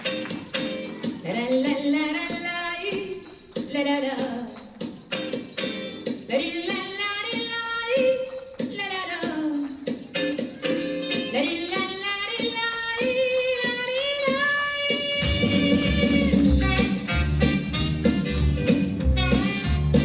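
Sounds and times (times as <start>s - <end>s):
bass-heavy beat: 15.2s - 20.0s.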